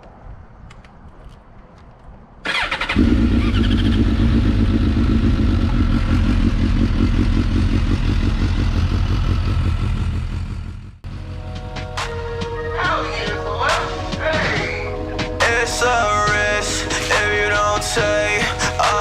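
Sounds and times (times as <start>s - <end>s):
motorcycle starter cranking: 2.4s - 4.4s
motorcycle engine idling: 2.5s - 11.5s.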